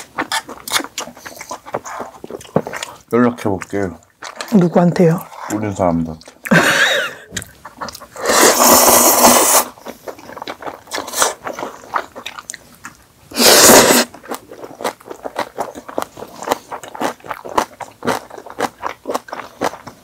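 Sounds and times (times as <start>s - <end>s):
chewing and crunching food: 0.0s - 13.2s, 13.9s - 20.0s
loud slurp: 8.2s - 9.8s, 13.3s - 14.1s.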